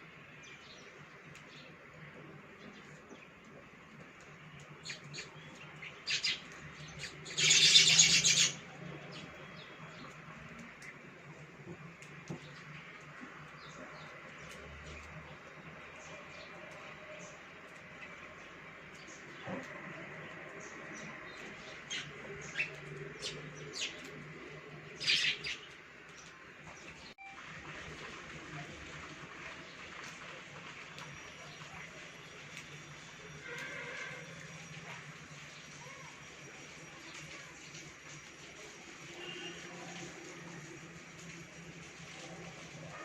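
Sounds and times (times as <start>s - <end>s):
birds chirping: 0.3s - 11.4s, 12.1s - 27.2s.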